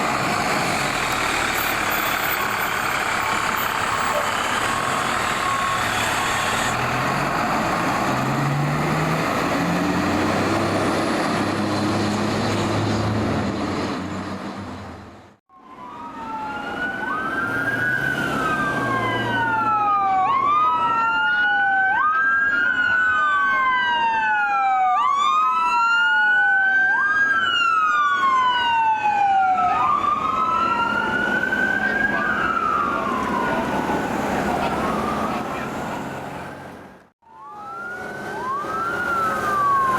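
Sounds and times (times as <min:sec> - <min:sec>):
truck engine revving: 0:00.0 - 0:15.3
road noise: 0:00.0 - 0:39.9
electronic sirens wailing: 0:01.4 - 0:12.0, 0:15.5 - 0:36.1, 0:37.2 - 0:39.9.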